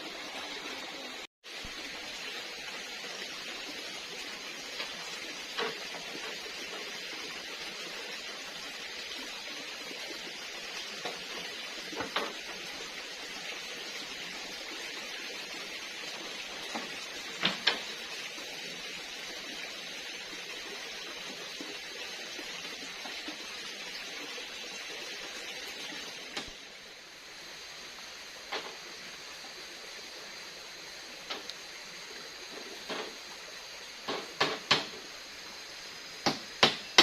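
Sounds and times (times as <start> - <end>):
forest background hiss: 0.0 - 37.0
sharp knocks: 36.2 - 37.0.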